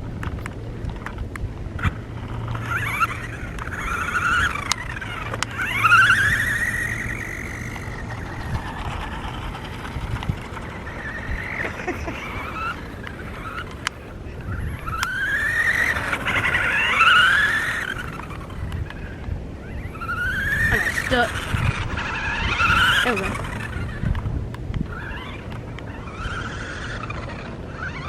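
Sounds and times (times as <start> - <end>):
sharp clicks: 0.0 - 14.0, 14.6 - 19.4
toy truck electric motors whining: 0.0 - 28.0.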